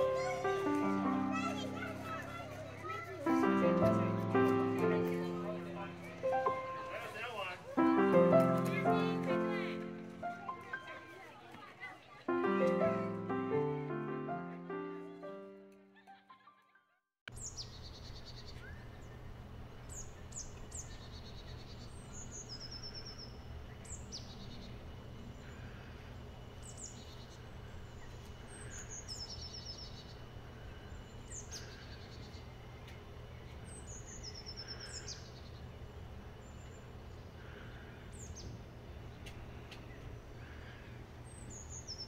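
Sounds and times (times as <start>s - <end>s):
low background noise: 0.0s - 15.7s
birds singing: 17.3s - 42.0s.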